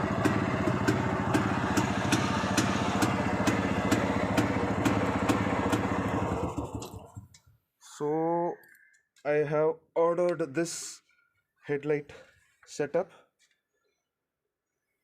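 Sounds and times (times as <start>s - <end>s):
sharp engine knock: 0.0s - 7.2s
engine running down: 0.0s - 7.4s
motorcycle engine idling: 0.0s - 7.4s.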